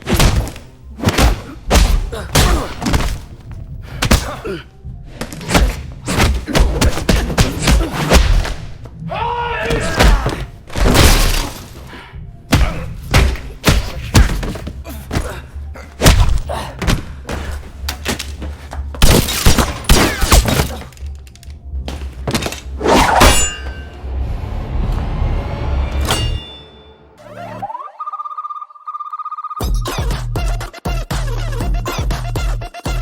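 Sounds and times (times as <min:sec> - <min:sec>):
punches and body blows: 0:00.0 - 0:09.0, 0:09.6 - 0:11.9, 0:12.5 - 0:21.1
music: 0:00.0 - 0:33.0.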